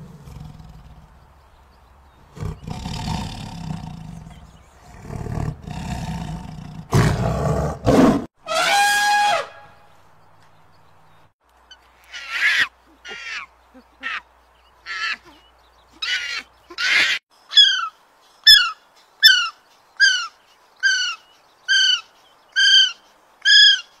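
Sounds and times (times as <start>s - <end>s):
young monkey screeching: 12.0s - 14.2s, 14.8s - 15.4s, 16.0s - 24.0s.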